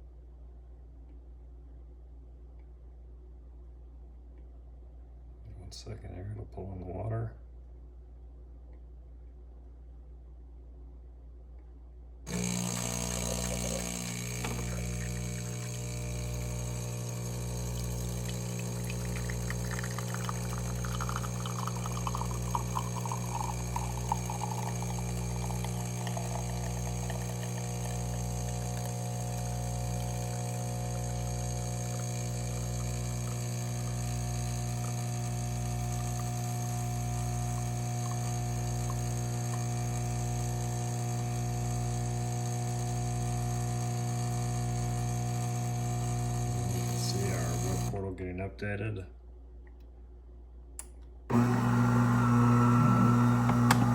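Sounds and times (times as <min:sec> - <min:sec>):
espresso machine pump humming: 0:12.3 - 0:48.0, 0:51.3 - 0:53.9.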